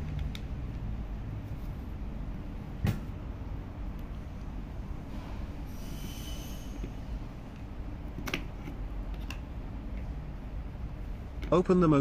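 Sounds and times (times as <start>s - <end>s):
steady low rumble: 0.0s - 5.7s
faint high squeak: 5.7s - 6.8s.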